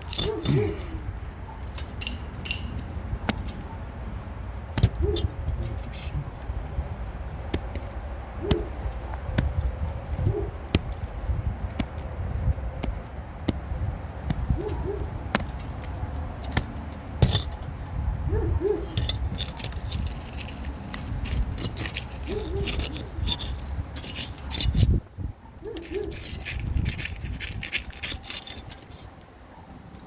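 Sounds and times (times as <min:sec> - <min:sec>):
shingles being pried loose: 0:00.0 - 0:05.8, 0:07.3 - 0:18.0, 0:18.7 - 0:25.0, 0:25.7 - 0:29.3
steady low rumble: 0:00.0 - 0:25.6
dove cooing: 0:00.2 - 0:01.1, 0:22.3 - 0:23.2.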